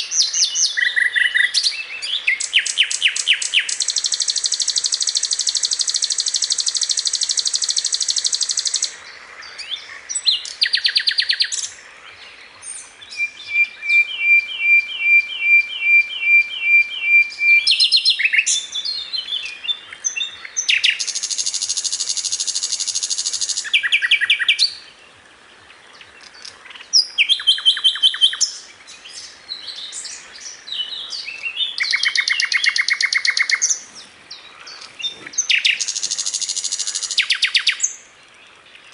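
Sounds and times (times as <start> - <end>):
flycatcher singing buzzy trills: 2.3 - 9.0.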